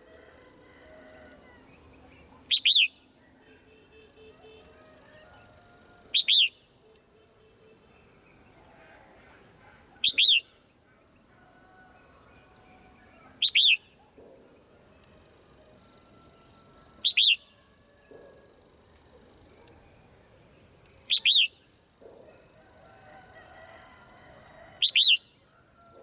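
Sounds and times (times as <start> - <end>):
faint twittering: 12.8 - 15.2, 18.9 - 22.6.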